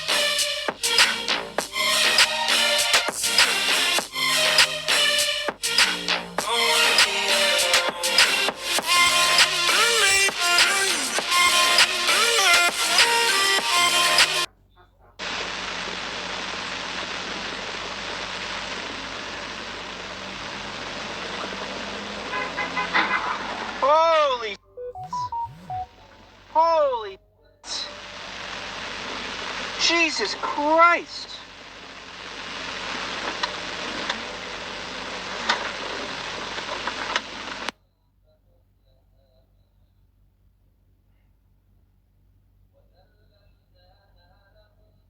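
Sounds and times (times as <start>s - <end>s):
road noise hiss: 15.2s - 24.5s, 27.7s - 37.7s
car rushing noise: 20.5s - 24.5s.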